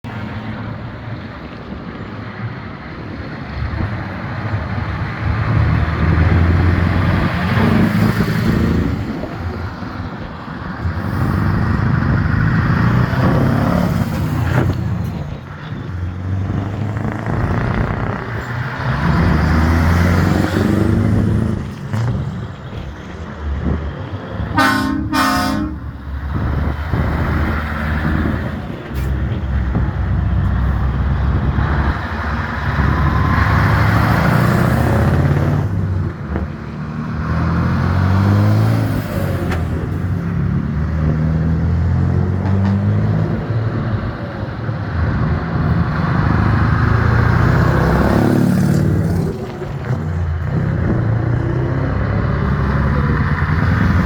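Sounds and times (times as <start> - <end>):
trucks driving past: 0.0 - 54.0
truck horn toots: 24.5 - 26.0.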